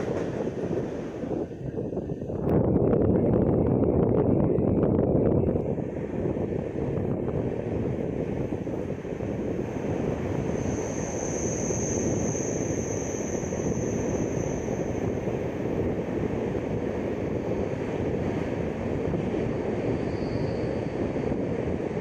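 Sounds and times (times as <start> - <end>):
passenger train rumbling: 0.0 - 22.0
thin high whine: 10.2 - 15.3.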